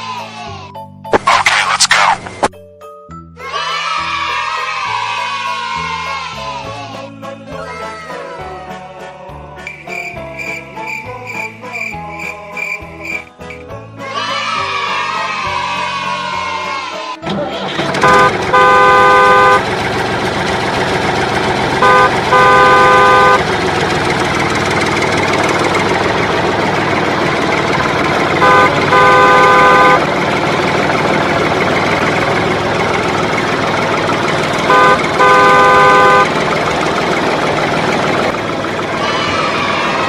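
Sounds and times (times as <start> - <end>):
engine and traffic noise: 1.1 - 2.5, 17.3 - 40.0
multi-tone vehicle horn honking: 17.8 - 26.3, 27.4 - 32.5, 33.5 - 36.8.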